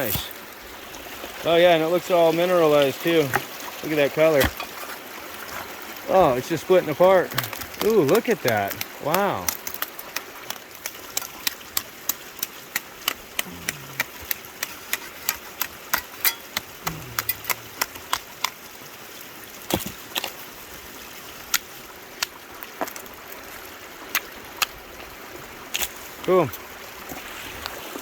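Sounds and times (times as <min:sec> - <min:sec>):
running water: 0:00.0 - 0:28.0
rock and gravel clicking: 0:02.6 - 0:20.6.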